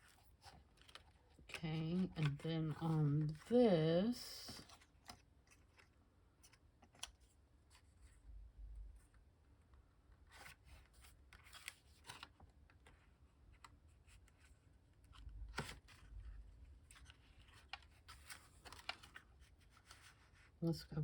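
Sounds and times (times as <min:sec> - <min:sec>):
paper rustling and tapping: 0:00.3 - 0:03.5, 0:16.9 - 0:20.3.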